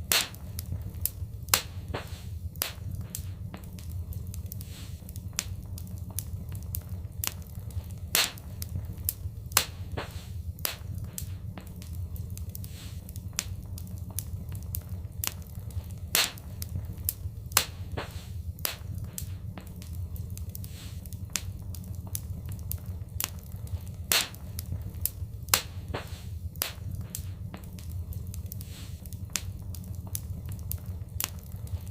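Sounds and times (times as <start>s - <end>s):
fire crackling and popping: 0.0s - 31.9s
low rumble: 0.0s - 31.9s.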